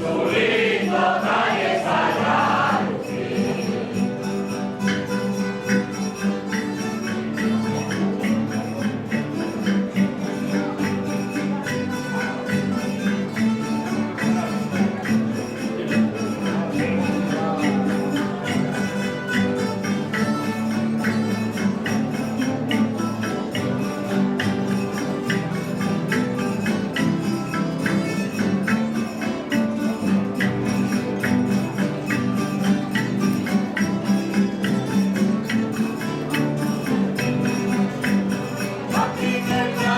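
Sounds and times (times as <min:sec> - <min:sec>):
sustained instrumental tones: 0:00.0 - 0:11.0
folk group music: 0:00.0 - 0:39.9.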